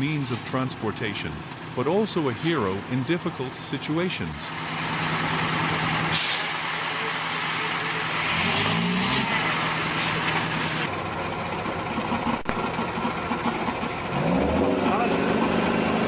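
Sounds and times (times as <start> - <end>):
heavy truck engine running: 0.0 - 16.0
short hisses: 6.1 - 6.5, 9.9 - 10.9.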